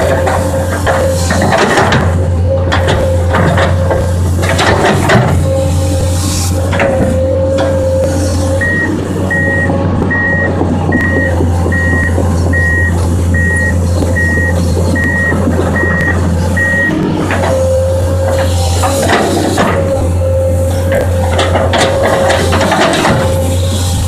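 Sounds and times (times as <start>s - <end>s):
excavator diesel engine running: 0.0s - 24.0s
warning alarm beeping: 8.6s - 17.0s.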